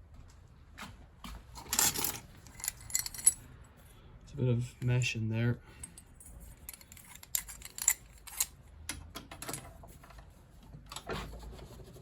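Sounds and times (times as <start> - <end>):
metal fittings clicking and clinking: 6.6 - 8.6.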